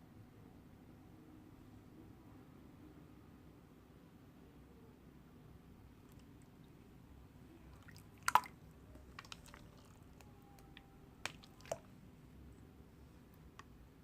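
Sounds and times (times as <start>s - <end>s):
slime squelching: 7.6s - 12.0s.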